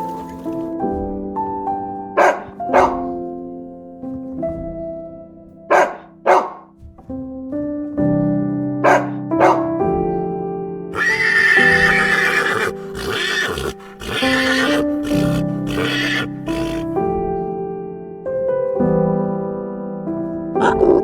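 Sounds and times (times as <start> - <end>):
horse whinnying: 11.0 - 17.0.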